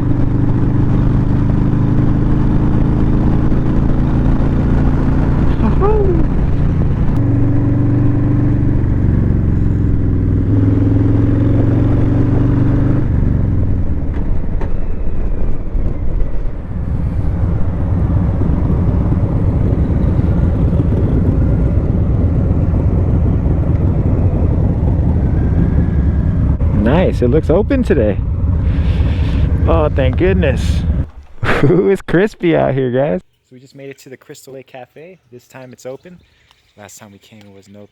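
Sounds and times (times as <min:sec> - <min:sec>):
motorcycle engine running: 0:00.0 - 0:31.4
heavy wind rush: 0:00.0 - 0:32.9
road rumble: 0:00.0 - 0:33.3.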